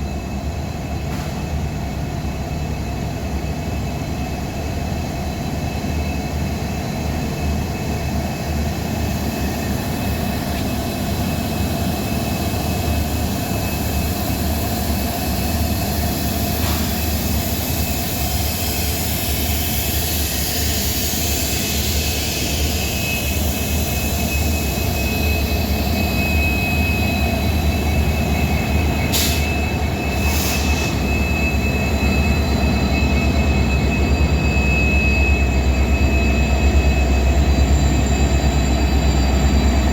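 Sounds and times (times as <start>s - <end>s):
diesel train engine drone: 0.0s - 39.9s.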